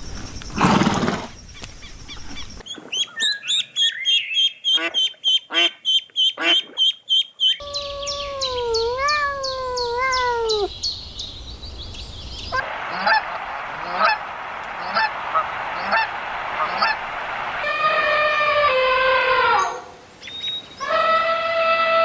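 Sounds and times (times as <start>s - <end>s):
small birds chirping: 1.2s - 12.6s, 19.6s - 20.9s
long wavering bird call: 2.6s - 10.8s, 12.5s - 22.0s
ducks quacking: 4.4s - 7.6s, 12.6s - 18.9s
steady background noise: 11.5s - 20.8s
honking calls: 12.6s - 20.1s.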